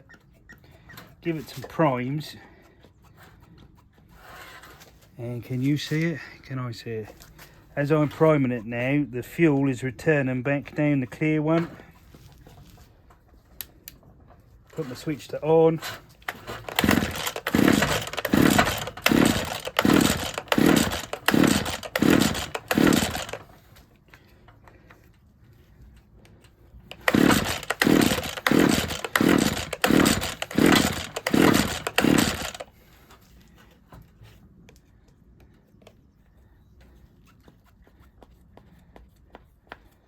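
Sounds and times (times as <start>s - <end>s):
recoil starter pulls: 14.7s - 23.7s, 26.9s - 32.8s.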